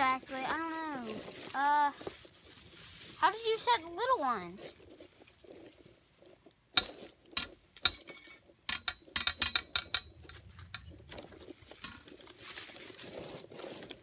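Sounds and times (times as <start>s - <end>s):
soft rustling: 0.0s - 7.8s, 9.7s - 14.0s
metal trap clicks and clanks: 6.8s - 10.9s.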